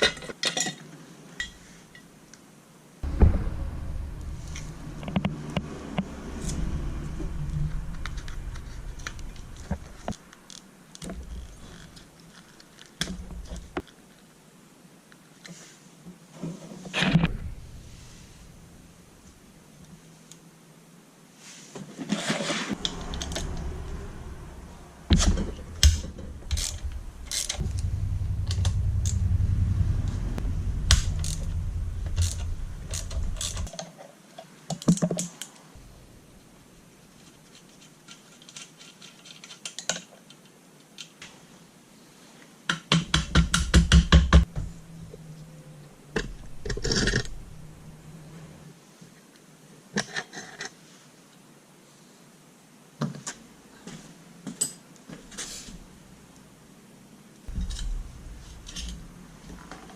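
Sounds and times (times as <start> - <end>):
low-pitched rumble: 3.0 - 10.2, 17.2 - 19.6, 22.8 - 33.7, 35.8 - 36.8, 44.4 - 48.7, 57.5 - 59.8.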